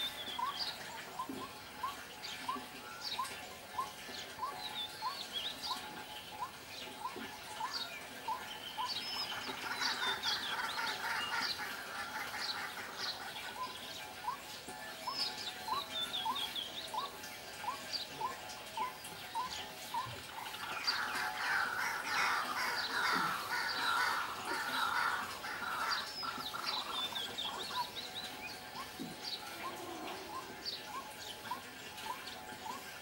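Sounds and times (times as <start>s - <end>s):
dense bird chattering: 17.7s - 30.5s.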